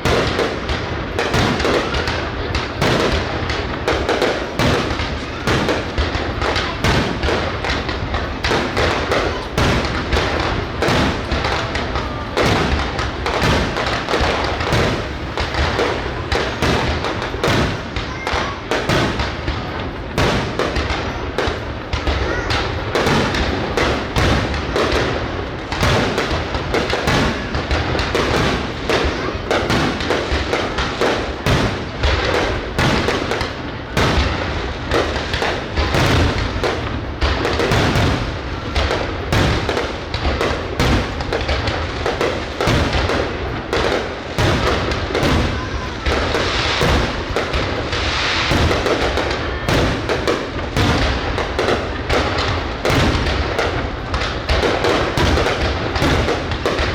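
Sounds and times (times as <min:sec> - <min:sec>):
fireworks bangs and thuds: 0:00.0 - 0:56.9.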